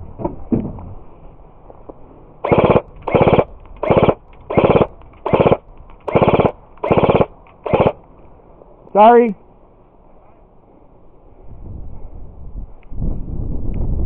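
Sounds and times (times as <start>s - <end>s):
airsoft gun full-auto bursts: 2.4s - 8.0s.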